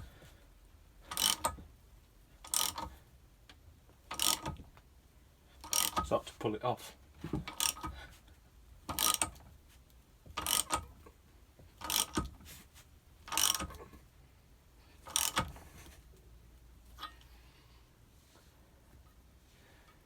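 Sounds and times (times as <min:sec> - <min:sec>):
ratchet wrench clicking: 0:01.1 - 0:01.6, 0:02.4 - 0:03.0, 0:04.1 - 0:04.6, 0:05.6 - 0:06.1, 0:07.5 - 0:08.0, 0:08.9 - 0:09.4, 0:10.4 - 0:10.9, 0:11.8 - 0:12.3, 0:13.2 - 0:13.8, 0:15.0 - 0:15.6.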